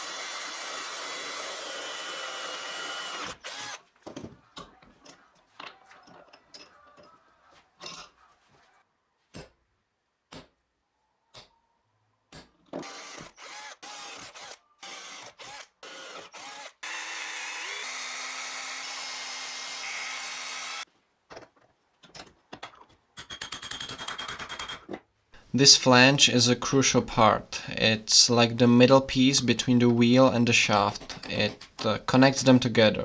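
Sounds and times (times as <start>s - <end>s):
power drill running: 0.0s - 3.8s, 12.8s - 20.8s.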